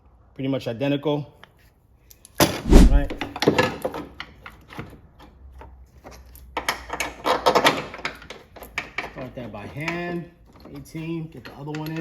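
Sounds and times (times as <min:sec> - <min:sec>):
metal parts clicking and knocking: 0:10.6 - 0:12.0.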